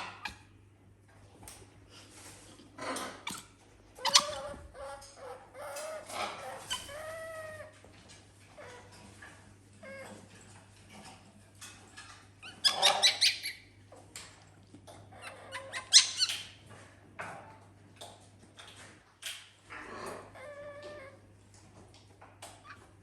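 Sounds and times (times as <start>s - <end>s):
high-pitched animal squeaks: 3.2s - 7.7s, 12.4s - 13.6s, 15.2s - 16.5s.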